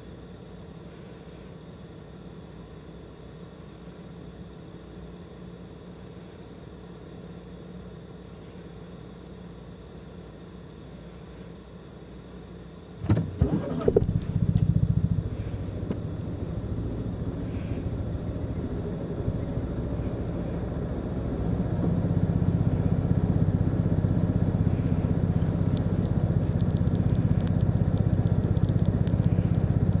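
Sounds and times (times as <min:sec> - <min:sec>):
car engine cranking and idling: 0:13.0 - 0:30.0.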